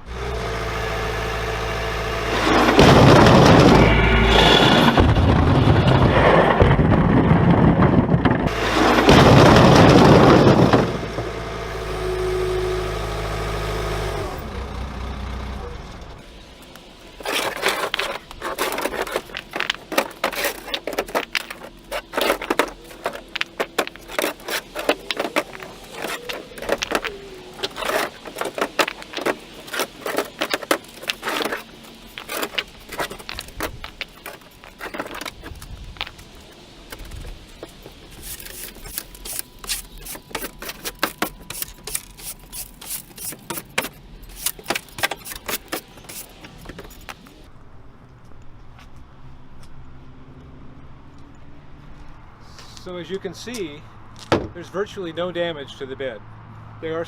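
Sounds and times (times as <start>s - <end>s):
machine drone: 0.0s - 47.9s
sharp knocks clacks and scrapes: 2.3s - 11.2s, 17.2s - 47.4s
concrete blocks crashing into truck bed: 2.3s - 11.4s, 17.2s - 47.2s.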